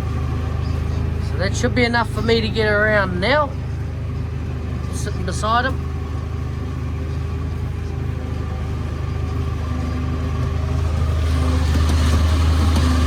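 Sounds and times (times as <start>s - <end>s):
farm vehicle engine droning: 0.0s - 13.0s
machinery noise: 0.0s - 13.0s.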